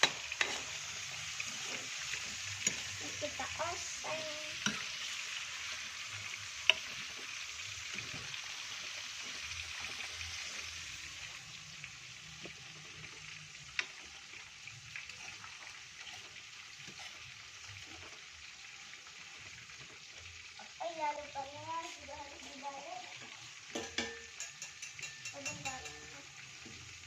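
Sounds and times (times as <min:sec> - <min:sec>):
beans sizzling in hot oil: 0:00.0 - 0:27.0
spatula clicking on pan: 0:04.6 - 0:04.9, 0:23.7 - 0:26.2.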